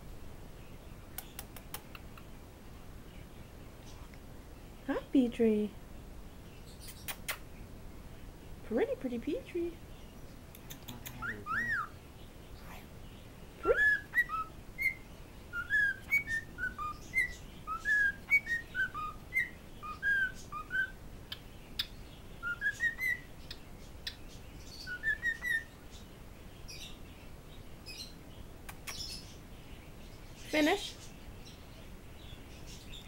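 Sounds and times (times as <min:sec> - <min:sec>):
faint high chirps: 0:10.1 - 0:12.8, 0:13.6 - 0:27.0
cockatiel whistling: 0:11.1 - 0:11.9, 0:13.8 - 0:20.9, 0:22.4 - 0:23.2, 0:24.9 - 0:25.7.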